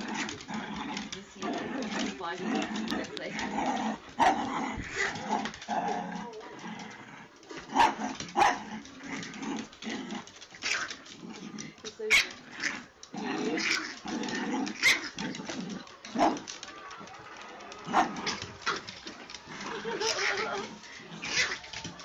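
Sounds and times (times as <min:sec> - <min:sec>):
puppies yapping: 0:00.0 - 0:06.4, 0:12.0 - 0:22.0.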